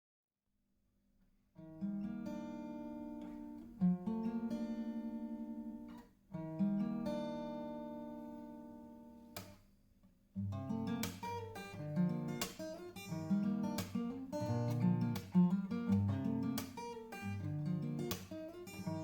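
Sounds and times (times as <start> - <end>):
acoustic guitar chords: 10.4 - 19.0.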